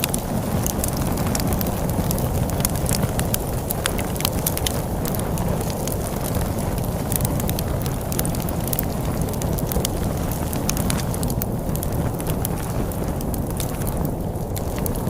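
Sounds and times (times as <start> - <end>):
storm wind rumble: 0.0 - 15.0
wood fire crackling and popping: 0.0 - 15.0.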